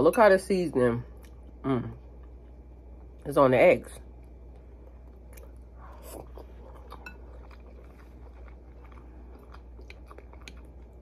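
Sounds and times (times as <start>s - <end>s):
steady low hum: 0.0s - 11.0s
person chewing noodles: 4.2s - 11.0s.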